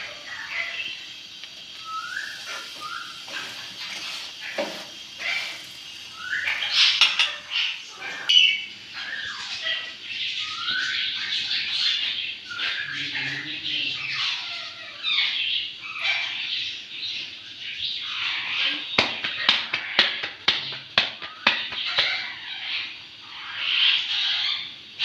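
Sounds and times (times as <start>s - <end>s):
birds chirping and squawking: 0.0s - 25.0s.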